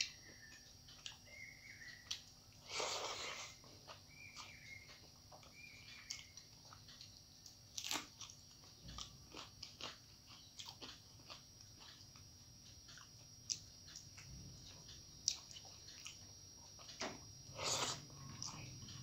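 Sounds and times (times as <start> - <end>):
chewing with wet clicks: 0.0 - 2.7, 3.6 - 19.0
crunchy bite: 7.7 - 11.4.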